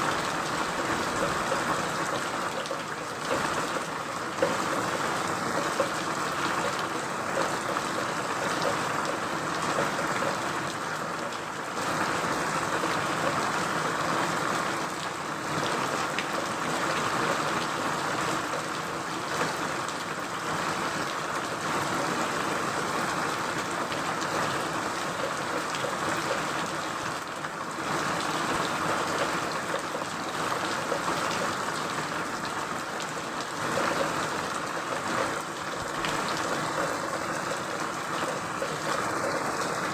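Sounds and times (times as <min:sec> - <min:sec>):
steady rain hiss: 0:00.0 - 0:20.6, 0:21.2 - 0:39.9
raindrop ticks: 0:00.2 - 0:12.0, 0:28.2 - 0:39.9.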